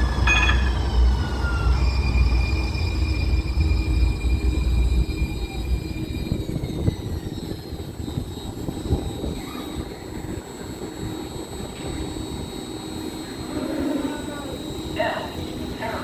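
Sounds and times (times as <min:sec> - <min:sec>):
light-rail car rumble: 0:00.0 - 0:09.4.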